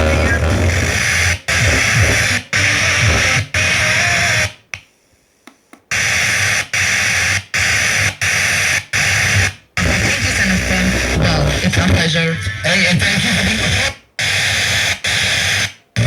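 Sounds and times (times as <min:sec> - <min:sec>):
radio static hiss: 0:00.0 - 0:04.6, 0:05.9 - 0:16.0.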